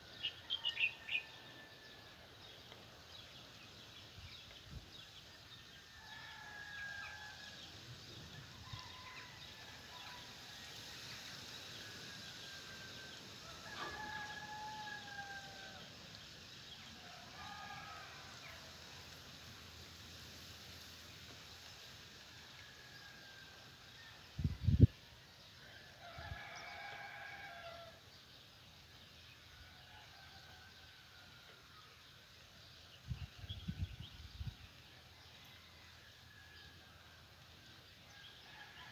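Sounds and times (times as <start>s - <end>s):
roosters crowing: 5.8s - 7.6s, 11.6s - 16.1s, 16.9s - 18.8s, 25.7s - 28.0s, 38.1s - 38.9s.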